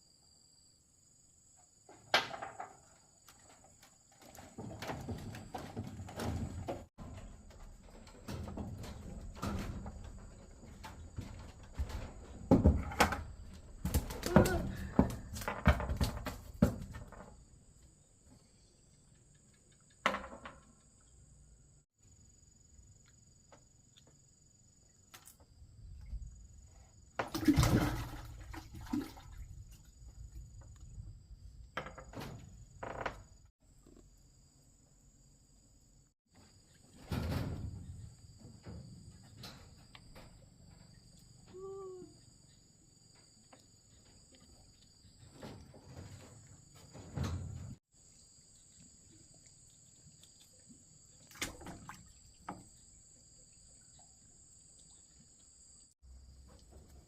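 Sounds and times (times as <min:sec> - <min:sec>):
insects chirring: 0:27.8 - 0:57.0.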